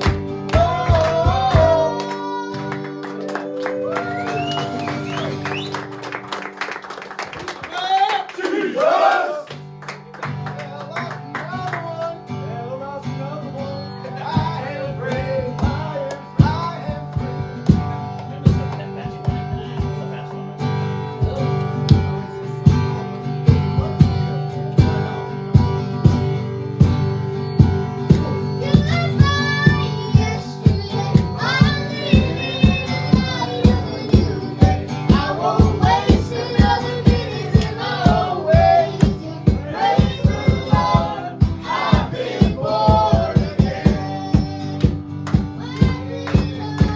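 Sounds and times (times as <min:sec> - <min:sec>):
singing: 0:00.0 - 0:05.8, 0:13.6 - 0:18.0, 0:27.9 - 0:46.9
guitar over held chords: 0:00.0 - 0:06.3, 0:11.2 - 0:46.9
worship band playing: 0:00.0 - 0:09.2, 0:13.6 - 0:46.9
steady beat: 0:25.6 - 0:46.9.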